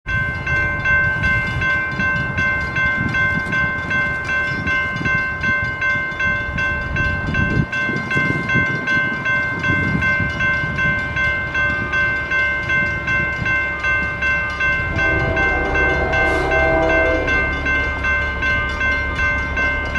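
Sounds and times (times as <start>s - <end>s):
railroad crossing bell ringing: 0.0s - 19.9s
passing train rumble: 0.1s - 19.9s
lower tones: 14.4s - 19.9s.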